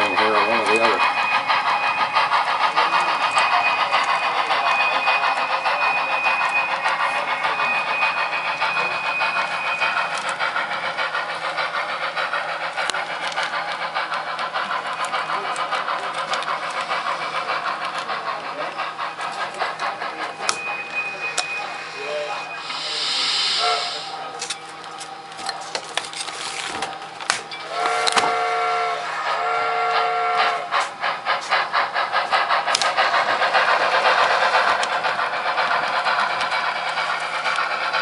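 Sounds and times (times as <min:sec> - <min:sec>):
model steam locomotive chuffing: 0:00.0 - 0:38.0
thin high steady tone: 0:20.2 - 0:24.3.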